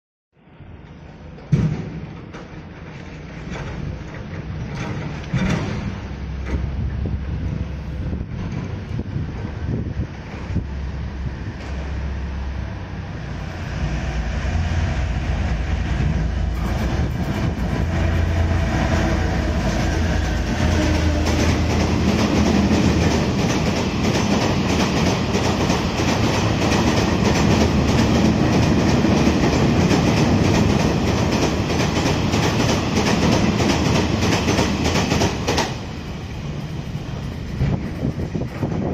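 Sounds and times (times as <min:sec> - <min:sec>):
diesel locomotive engines droning: 0:02.1 - 0:38.9
wagon wheels clattering over rail joints: 0:02.4 - 0:06.7.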